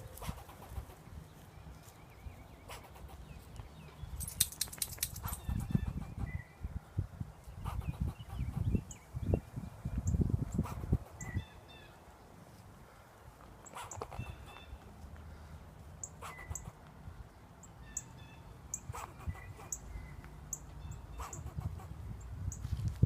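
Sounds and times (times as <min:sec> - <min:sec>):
squirrel barking: 0:00.0 - 0:01.0, 0:02.6 - 0:03.4, 0:05.1 - 0:06.4, 0:07.6 - 0:09.0, 0:13.6 - 0:14.8, 0:16.0 - 0:16.8, 0:17.9 - 0:19.9, 0:20.5 - 0:22.0.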